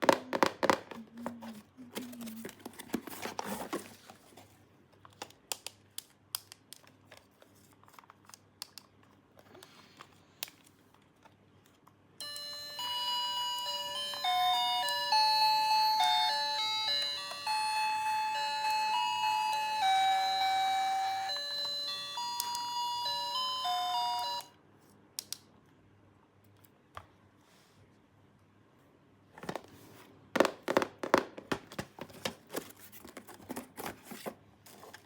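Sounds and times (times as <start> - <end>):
electronic toy chime melody: 12.2 - 24.5.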